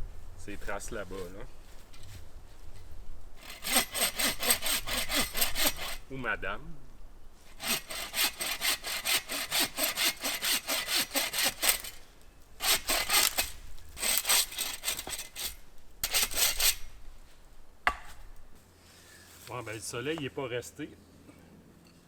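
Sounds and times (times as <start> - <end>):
hand saw cutting wood: 3.4 - 6.0, 7.5 - 12.0, 12.6 - 16.9.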